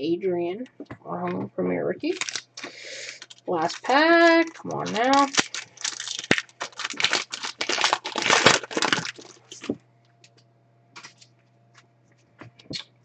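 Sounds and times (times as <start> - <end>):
foil pack tearing and crinkling: 2.1 - 9.8.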